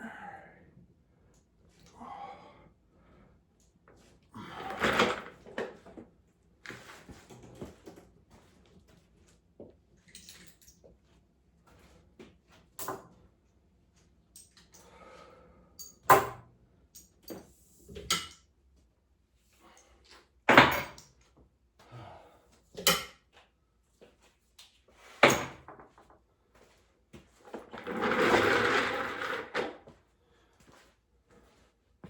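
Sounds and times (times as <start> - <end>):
scraping or rustling: 27.5 - 29.8.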